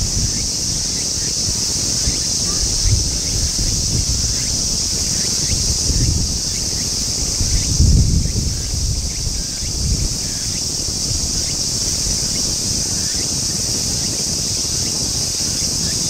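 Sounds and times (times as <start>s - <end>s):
high-pitched insect chorus: 0.0s - 16.0s
wind rumble on microphone: 0.0s - 16.0s.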